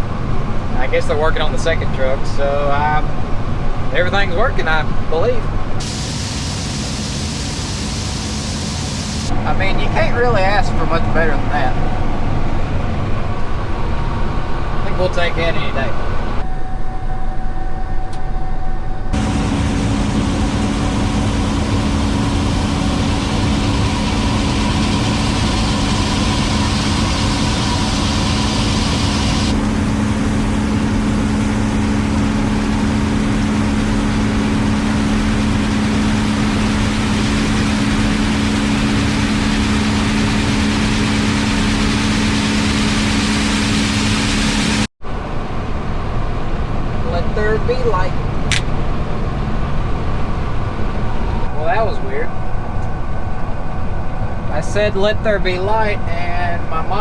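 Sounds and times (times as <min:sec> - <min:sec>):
combine harvester running: 0:00.0 - 0:16.4, 0:19.1 - 0:47.2.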